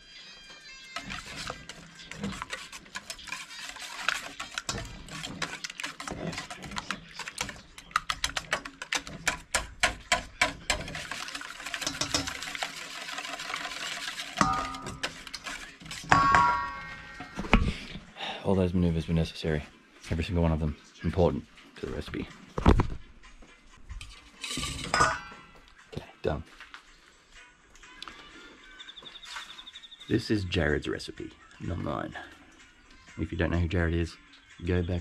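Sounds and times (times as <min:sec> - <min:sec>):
eggs being cracked: 0:01.0 - 0:17.8
utensil clicking against a bowl: 0:02.3 - 0:12.7.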